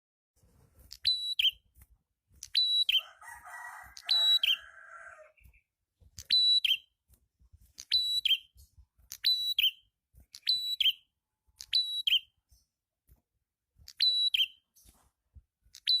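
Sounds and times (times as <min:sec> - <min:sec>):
bird calling whistled notes: 0:00.9 - 0:01.6, 0:02.4 - 0:03.1, 0:03.9 - 0:04.9, 0:06.2 - 0:06.9, 0:07.8 - 0:08.6, 0:09.2 - 0:12.3, 0:13.9 - 0:14.6, 0:15.8 - 0:16.0.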